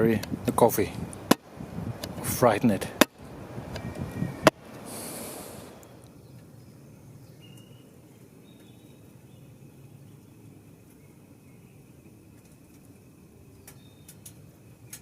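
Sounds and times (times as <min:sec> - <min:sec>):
short hiss: 0:04.7 - 0:06.0.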